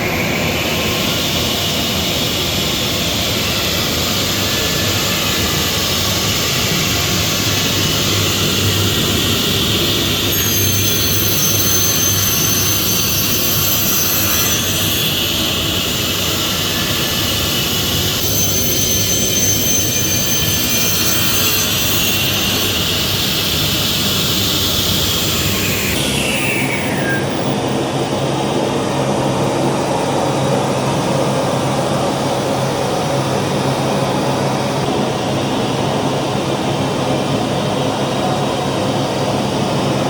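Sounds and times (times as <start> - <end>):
high whine: 0.0 - 40.0
saw blade cutting chipboard: 4.2 - 27.5.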